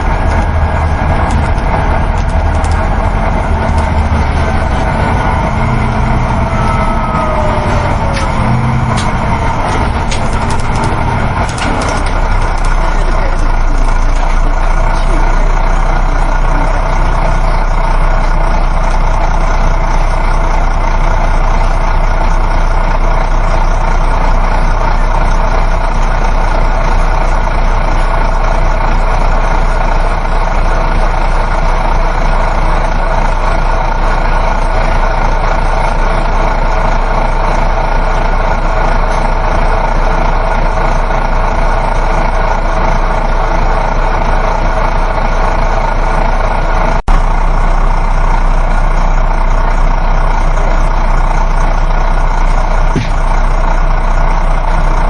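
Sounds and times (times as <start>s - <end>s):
bus engine drone: 0.0s - 55.0s
road noise: 0.0s - 55.0s.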